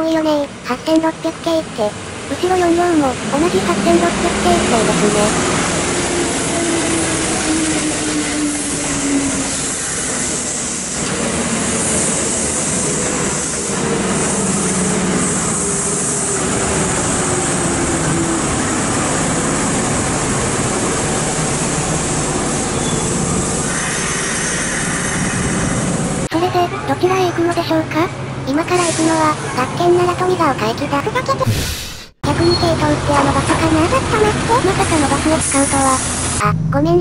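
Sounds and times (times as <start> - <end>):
wheel and rail rumble: 0.0 - 31.4, 32.2 - 37.0
train motor whine: 3.2 - 26.3.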